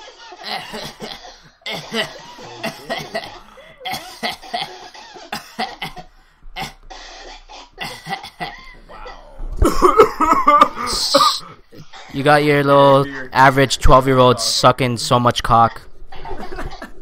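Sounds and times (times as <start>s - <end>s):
people laughing hard: 0.0s - 5.7s, 9.6s - 11.4s, 16.1s - 17.0s.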